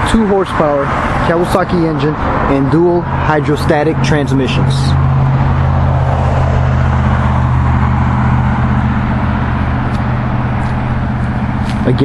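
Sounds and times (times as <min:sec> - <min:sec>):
lawn mower engine running: 0:05.3 - 0:12.0.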